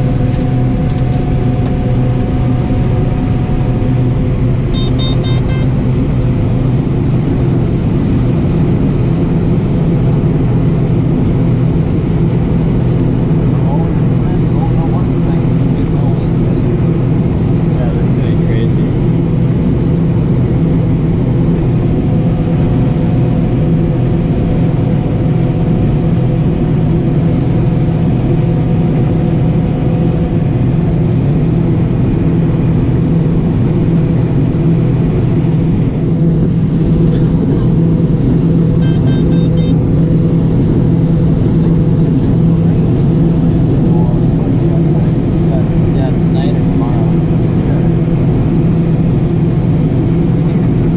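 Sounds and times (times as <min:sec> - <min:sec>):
combine harvester drone: 0:00.0 - 0:50.9
short high tones: 0:04.7 - 0:05.8, 0:38.8 - 0:39.8.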